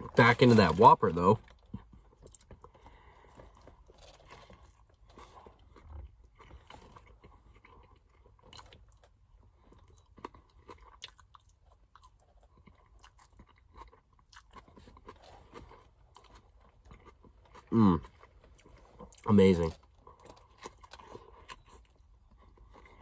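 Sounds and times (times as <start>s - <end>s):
small crunches: 0.1s - 11.4s
person chewing with wet clicks: 1.4s - 23.0s.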